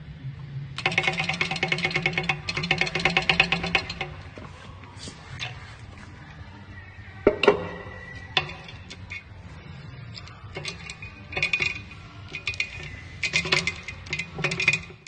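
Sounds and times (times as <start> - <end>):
metal tools clinking: 7.4 - 15.0.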